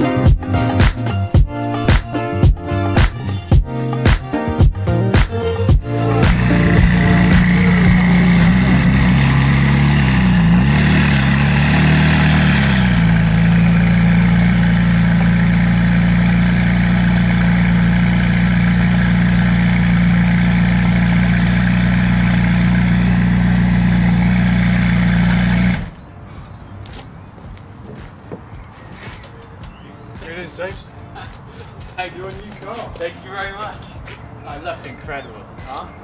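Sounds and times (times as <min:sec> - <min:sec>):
car engine idling: 0:04.6 - 0:26.0.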